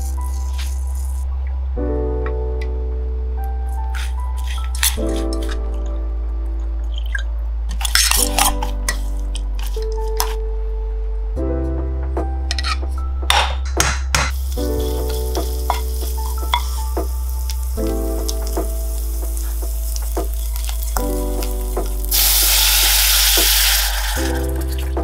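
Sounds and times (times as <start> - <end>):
meat sizzling and crackling in a pot: 14.3 - 25.0
loud hiss of liquid poured in pot: 22.1 - 24.8.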